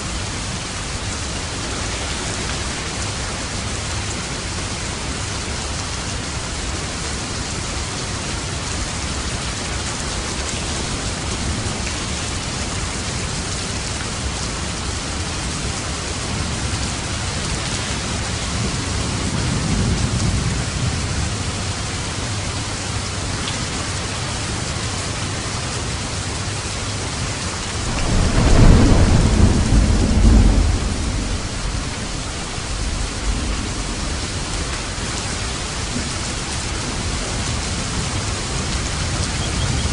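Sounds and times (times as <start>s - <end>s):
steady rain falling: 0.0s - 39.9s
thunder rumbling: 27.6s - 39.9s.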